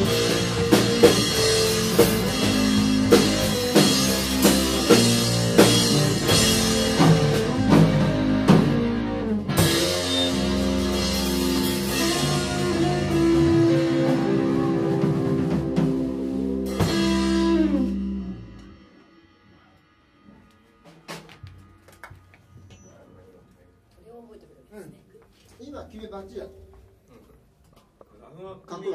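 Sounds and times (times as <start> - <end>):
rock band playing: 0.0 - 19.4.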